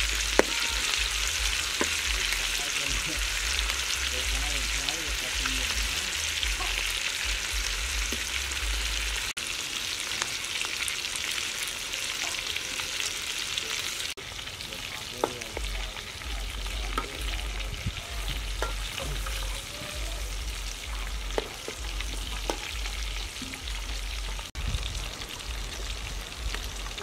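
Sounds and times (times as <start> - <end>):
food sizzling in hot oil: 0.0 - 27.0
metal spatula knocking on wok: 18.6 - 19.4, 21.3 - 22.8.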